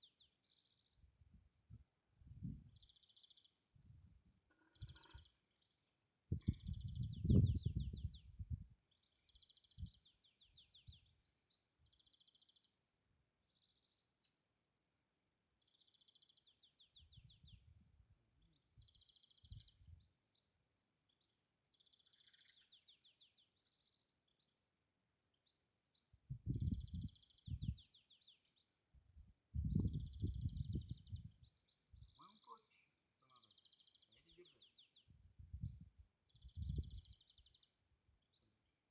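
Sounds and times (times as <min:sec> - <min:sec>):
songbird trilling: 0:04.5 - 0:05.4
dull low thumps: 0:29.6 - 0:31.4.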